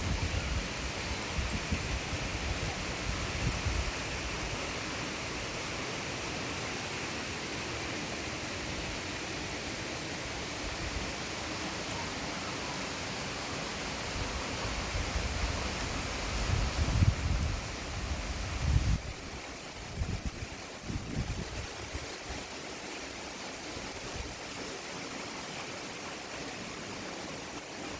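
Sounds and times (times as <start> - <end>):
wind rumble on microphone: 0.0 - 4.6, 14.1 - 22.2.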